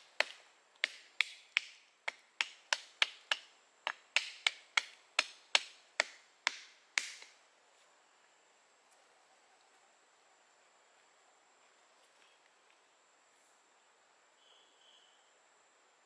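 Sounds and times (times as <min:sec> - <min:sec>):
tool striking wood: 0:00.0 - 0:07.4.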